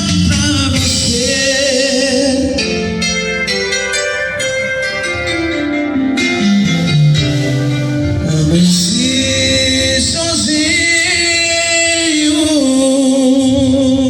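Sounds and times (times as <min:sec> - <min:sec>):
song with sung vocals: 0:00.0 - 0:14.0.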